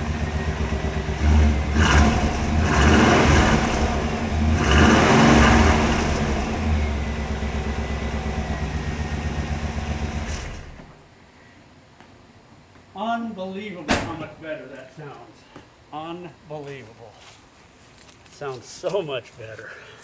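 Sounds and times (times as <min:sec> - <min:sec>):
pickup engine revving and idling: 0:00.0 - 0:10.8.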